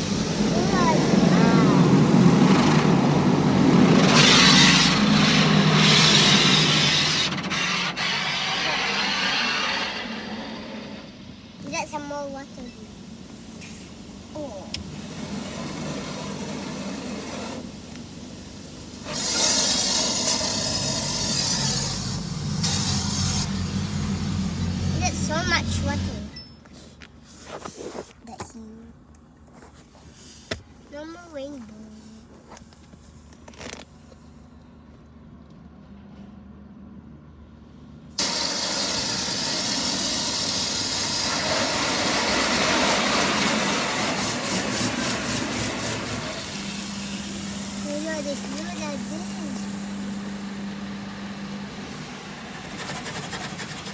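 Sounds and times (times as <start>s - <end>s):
water spray hissing on car: 0.0s - 26.2s, 38.2s - 50.3s.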